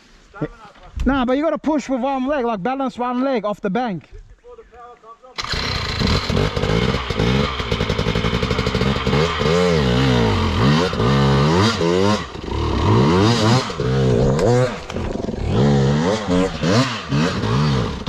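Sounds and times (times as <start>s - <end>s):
dirt bike engine revving: 5.4s - 18.0s.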